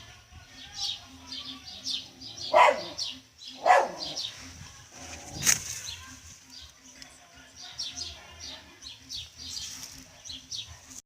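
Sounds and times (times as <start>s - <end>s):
birds chirping: 0.0s - 11.0s
dog barking: 2.5s - 4.2s.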